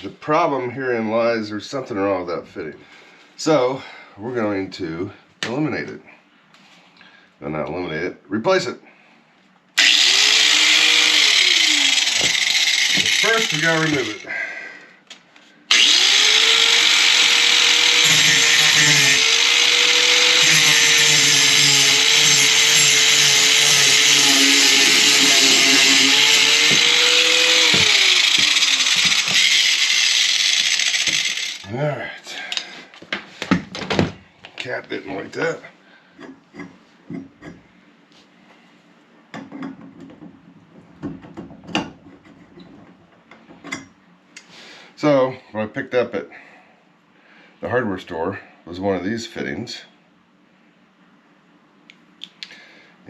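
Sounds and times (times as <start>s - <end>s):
power tool motor running: 9.8s - 14.3s, 15.7s - 31.7s.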